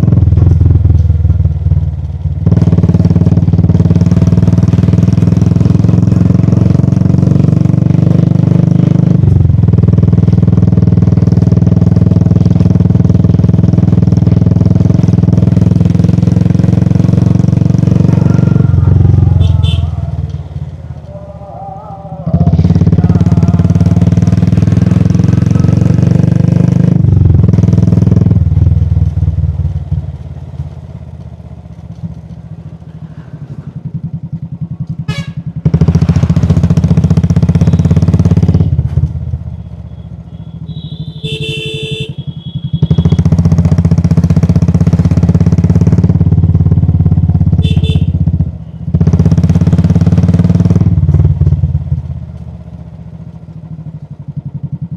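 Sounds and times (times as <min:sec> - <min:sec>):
motorcycle engine thumping: 0:00.0 - 0:06.3, 0:33.5 - 0:39.4.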